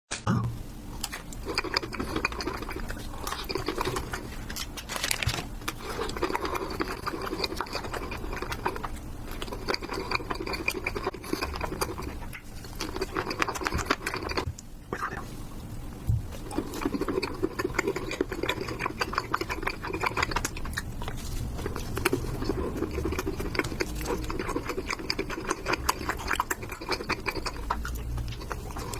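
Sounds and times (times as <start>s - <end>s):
close chewing mouth sounds: 1.0s - 4.7s, 5.6s - 15.4s, 16.3s - 28.9s.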